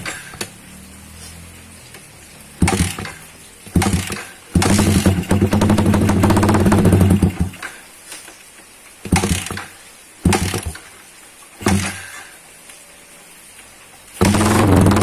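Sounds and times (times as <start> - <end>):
motorcycle revving: 0.0 - 7.6, 10.3 - 10.8, 14.2 - 15.0.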